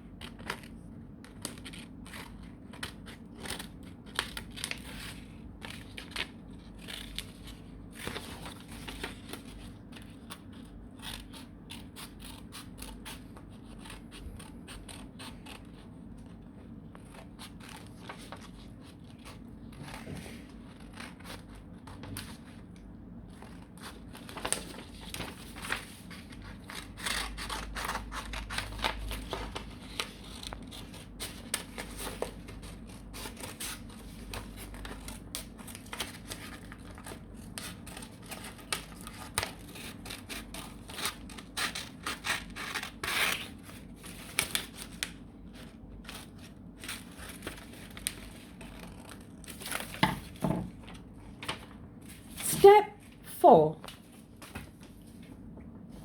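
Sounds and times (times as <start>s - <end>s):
scissors snipping paper: 0.2s - 16.3s, 23.3s - 50.0s
paper rustling: 1.4s - 11.3s, 23.3s - 52.5s.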